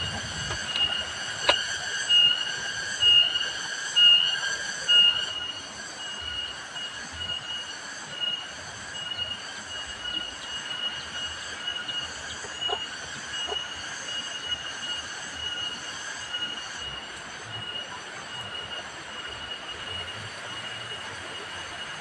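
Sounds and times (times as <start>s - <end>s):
cicadas buzzing: 0.0s - 22.0s.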